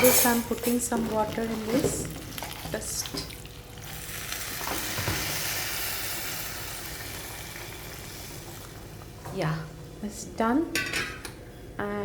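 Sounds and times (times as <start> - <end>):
paste sizzling in a hot pan: 2.0 - 8.7.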